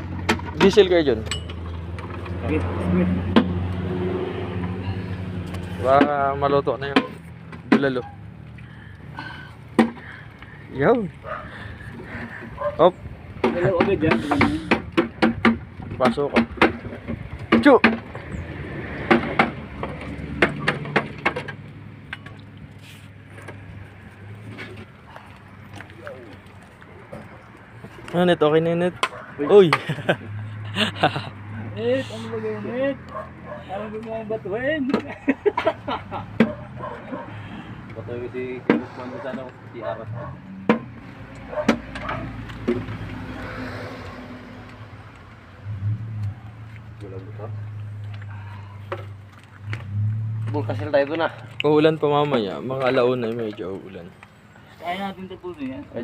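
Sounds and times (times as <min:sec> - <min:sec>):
sharp knocks: 0:13.4 - 0:18.1, 0:19.0 - 0:21.6.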